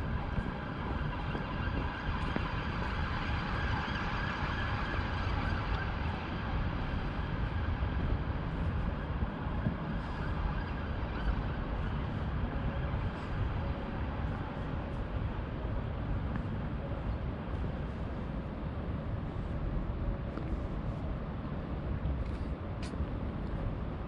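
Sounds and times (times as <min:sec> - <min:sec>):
distant siren: 0:00.0 - 0:14.9
city traffic rumble: 0:00.0 - 0:24.0.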